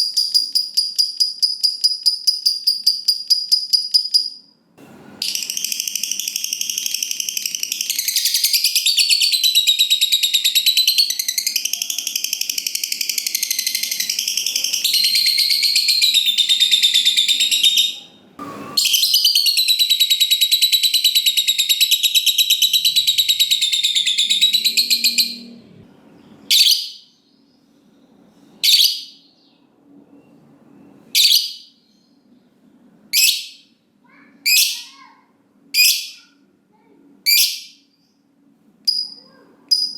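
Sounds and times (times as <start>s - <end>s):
lovebird chattering trill: 5.3s - 18.1s, 18.9s - 25.5s
sharp bird calls: 18.8s - 27.3s.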